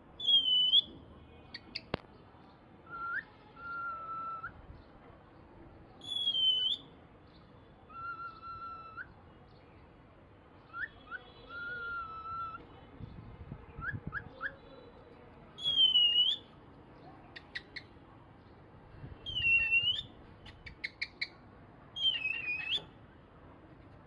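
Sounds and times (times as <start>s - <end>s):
high whistled bird call: 0.2s - 0.9s, 2.9s - 4.6s, 6.0s - 6.9s, 7.9s - 9.2s, 10.6s - 12.6s, 15.6s - 16.5s, 19.2s - 21.3s, 22.0s - 23.0s
long lower bird whistles: 0.2s - 0.9s, 2.9s - 4.6s, 6.0s - 6.9s, 7.9s - 9.1s, 10.7s - 12.6s, 15.6s - 16.5s, 19.2s - 20.1s, 22.0s - 22.9s.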